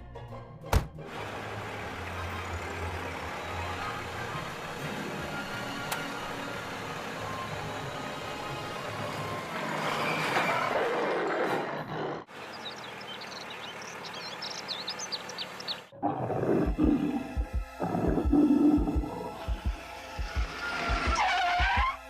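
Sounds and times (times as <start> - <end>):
birds chirping: 12.3 - 19.7
big cat roar: 16.0 - 19.3
low thumps: 16.6 - 21.2.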